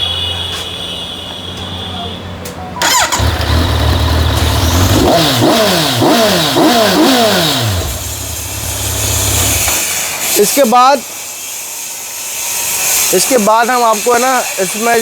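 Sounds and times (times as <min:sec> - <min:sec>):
motorcycle engine idling and revving: 0:02.8 - 0:09.8.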